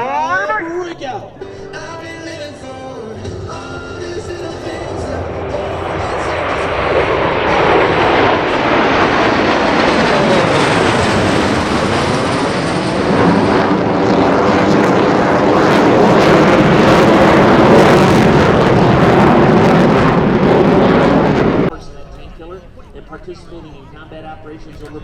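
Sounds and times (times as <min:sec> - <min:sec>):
jets roaring past: 0:00.0 - 0:22.5.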